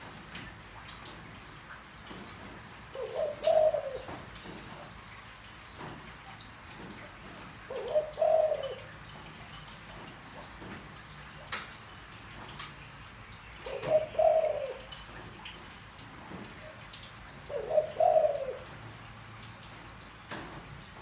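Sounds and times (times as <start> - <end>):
dove cooing: 2.7 - 4.7, 7.3 - 9.4, 13.6 - 15.4, 16.3 - 19.0.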